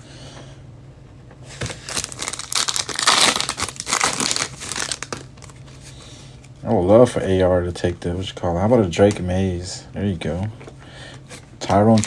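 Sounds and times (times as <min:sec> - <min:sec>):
foil wrapper crinkling: 0:01.6 - 0:05.7, 0:11.6 - 0:12.0.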